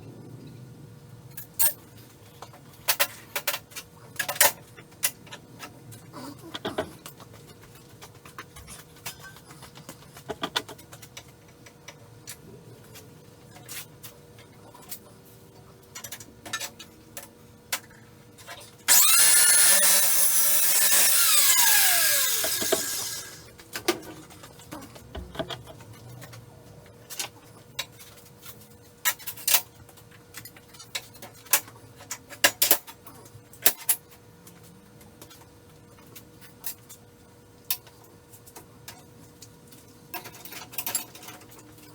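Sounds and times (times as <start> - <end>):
cut-off saw cutting steel: 18.9 - 23.5.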